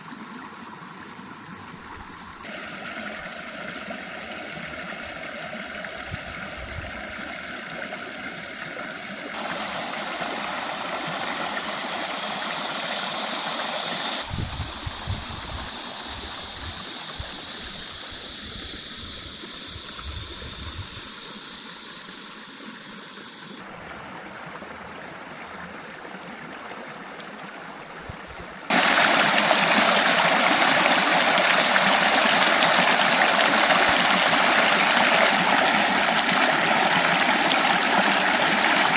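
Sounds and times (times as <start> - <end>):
stream water rushing and gurgling: 0.0 - 38.9.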